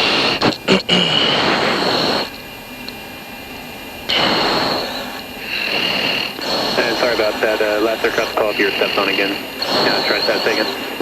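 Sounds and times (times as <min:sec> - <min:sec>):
jet cockpit rushing noise: 0:00.0 - 0:03.0, 0:03.6 - 0:11.0.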